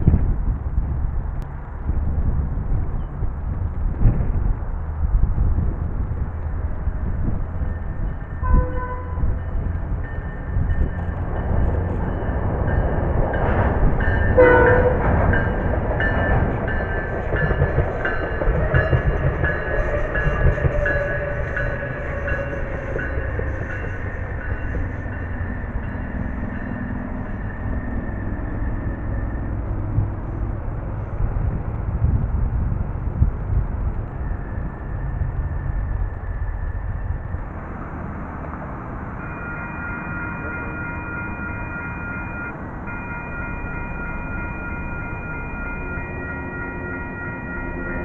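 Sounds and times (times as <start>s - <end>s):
wind rumble on microphone: 0.0s - 39.2s
train slowing down: 0.1s - 48.0s
train horn blast: 8.4s - 9.6s, 14.3s - 15.2s.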